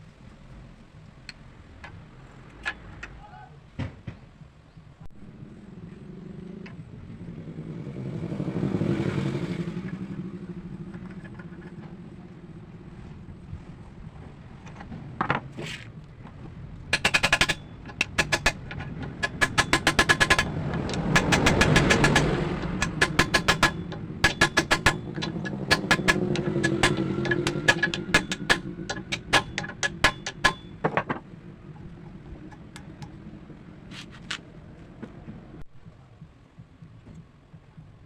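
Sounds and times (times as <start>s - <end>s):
engine revving: 5.2s - 14.4s, 17.0s - 35.6s
sharp ringing clicks: 17.0s - 31.1s.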